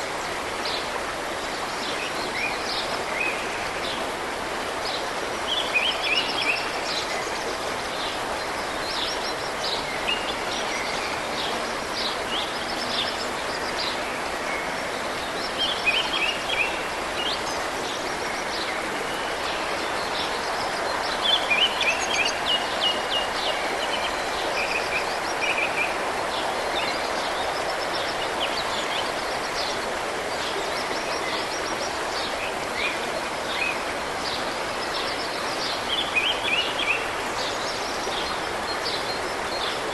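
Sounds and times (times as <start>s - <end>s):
water flowing: 0.0s - 39.9s.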